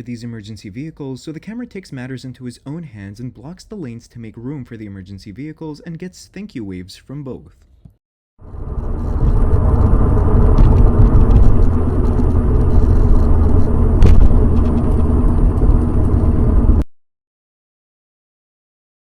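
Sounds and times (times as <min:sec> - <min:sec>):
road noise: 0:08.4 - 0:16.8
vehicle engine rumble: 0:08.4 - 0:16.8.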